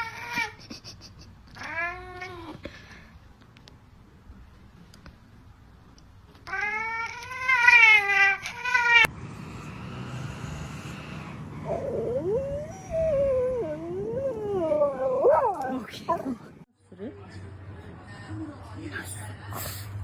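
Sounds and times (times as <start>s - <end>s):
cat yowling: 6.5s - 9.1s.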